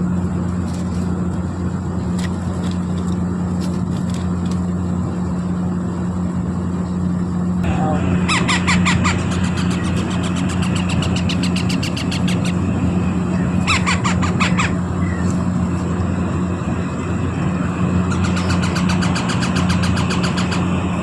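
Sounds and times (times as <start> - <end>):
low hum: 0.0 - 21.0
parrot chicks squeaking: 8.2 - 12.7, 13.3 - 15.6, 18.0 - 20.7.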